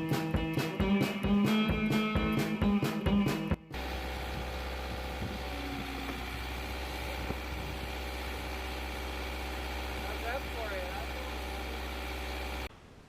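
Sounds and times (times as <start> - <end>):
music: 0.0 - 3.8
low mechanical hum: 3.7 - 13.0.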